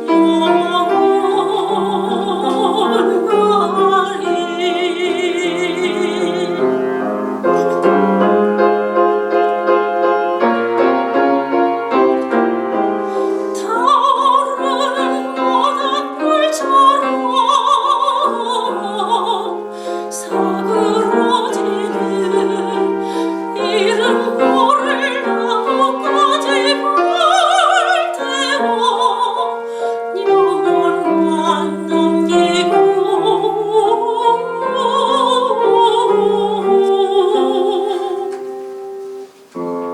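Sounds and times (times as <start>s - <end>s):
soprano singing operatically: 0.0s - 39.1s
piano accompaniment: 0.0s - 39.9s.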